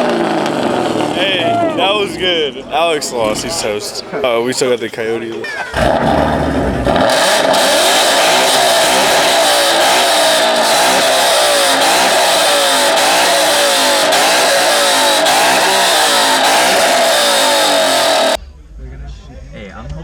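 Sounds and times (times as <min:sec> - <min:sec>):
car engine revving hard: 0:00.0 - 0:02.5, 0:05.7 - 0:18.4.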